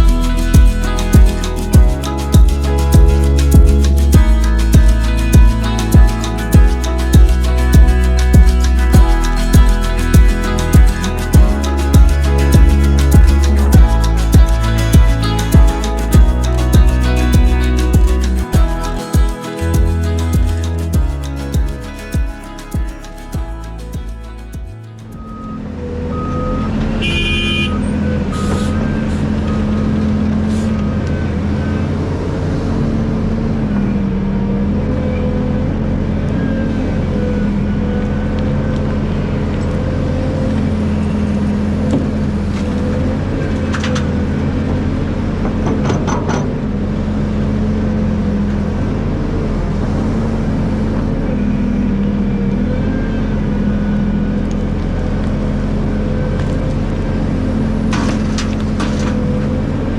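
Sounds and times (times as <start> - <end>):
excavator diesel engine running: 0.0 - 33.6.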